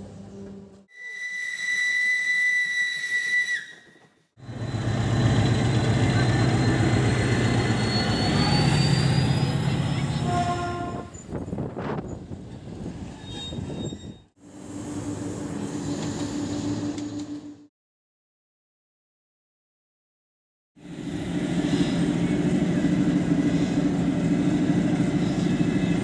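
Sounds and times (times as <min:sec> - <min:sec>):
steam locomotive whistle: 0:00.9 - 0:04.0, 0:10.2 - 0:11.2
diesel locomotive engine running: 0:04.4 - 0:11.6, 0:20.8 - 0:26.0.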